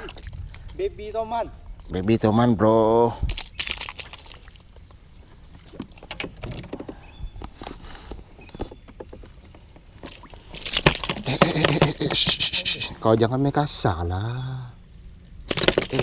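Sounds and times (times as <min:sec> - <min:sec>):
knocks and clicks in a boat: 0:03.6 - 0:13.3, 0:15.5 - 0:16.0.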